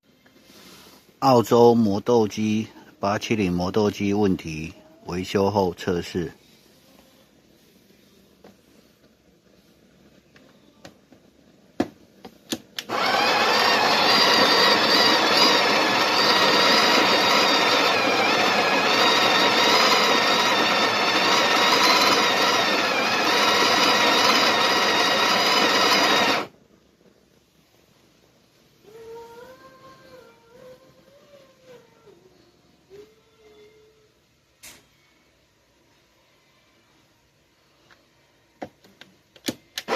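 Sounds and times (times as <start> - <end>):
coffee grinder motor whining: 12.8 - 26.5.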